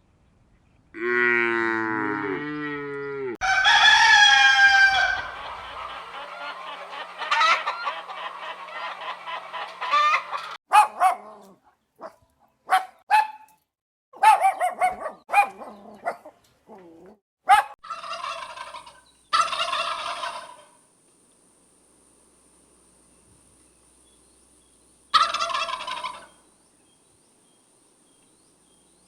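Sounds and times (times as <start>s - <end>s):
fowl calling: 3.4s - 10.6s, 17.8s - 20.8s, 25.1s - 26.4s.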